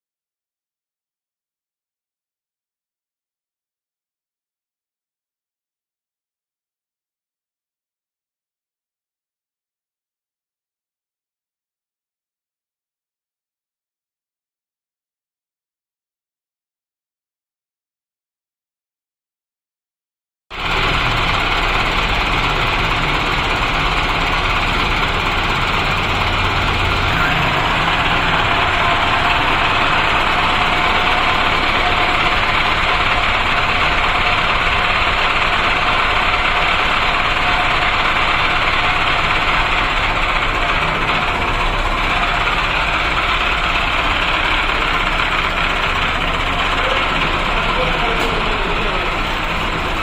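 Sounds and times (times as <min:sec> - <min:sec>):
tractor diesel engine running: 0:20.5 - 0:50.0.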